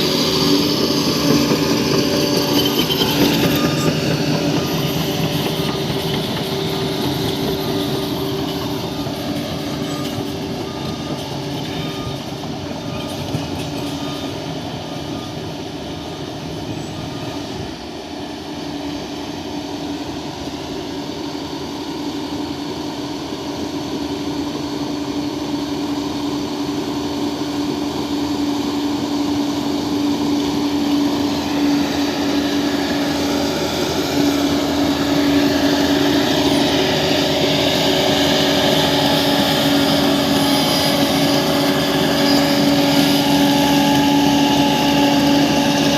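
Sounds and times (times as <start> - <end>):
bulldozer diesel engine running: 0.0 - 18.7, 22.3 - 45.9.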